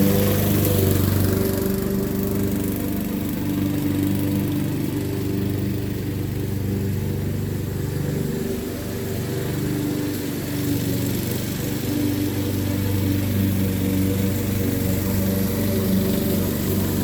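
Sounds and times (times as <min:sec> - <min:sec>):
lawn mower running: 0:00.0 - 0:17.0.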